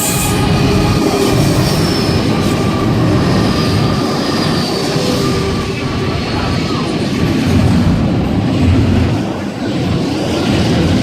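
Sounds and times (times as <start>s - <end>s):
high wheel squeal: 0.0s - 6.8s
train wheels rumbling on rails: 0.0s - 11.0s.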